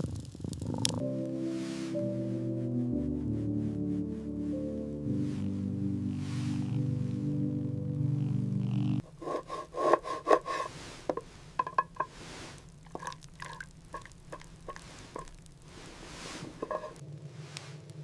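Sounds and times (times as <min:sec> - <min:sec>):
music: 0:00.8 - 0:09.0
rubbing or scraping: 0:01.4 - 0:02.0, 0:06.2 - 0:06.8, 0:09.0 - 0:13.2, 0:14.0 - 0:17.8
wooden knocks: 0:09.3 - 0:12.1.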